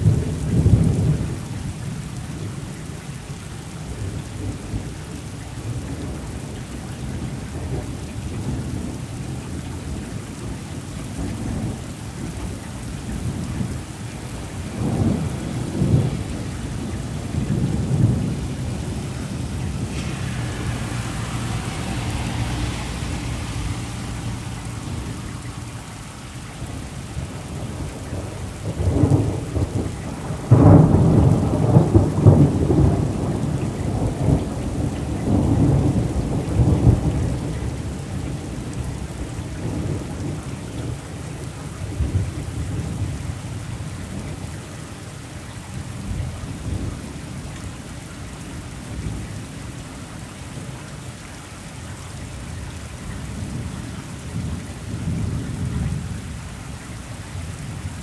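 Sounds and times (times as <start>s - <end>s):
thunder rumbling: 0.0s - 2.7s, 4.0s - 44.4s
rain falling: 0.0s - 58.0s.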